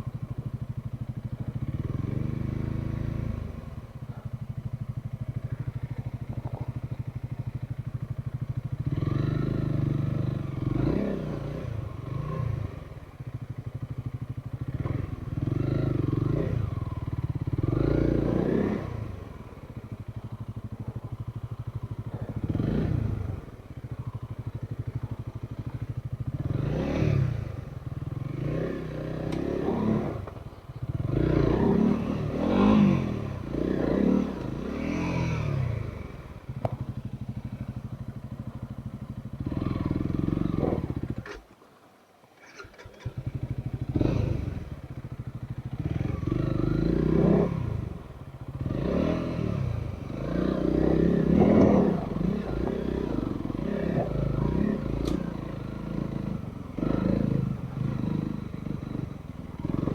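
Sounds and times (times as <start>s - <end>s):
motorcycle engine revving: 0.0s - 41.5s, 42.4s - 59.9s.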